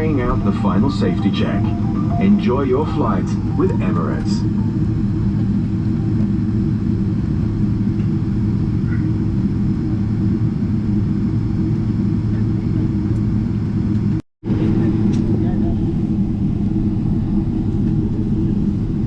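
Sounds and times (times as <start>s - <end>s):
low hums: 0.0s - 12.8s
aircraft cabin rumble: 0.0s - 19.0s.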